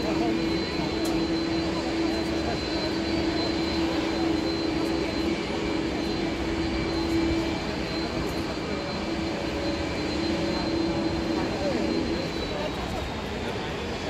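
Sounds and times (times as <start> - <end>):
airplane engines humming: 0.0 - 14.0
thin high engine whine: 0.0 - 14.0.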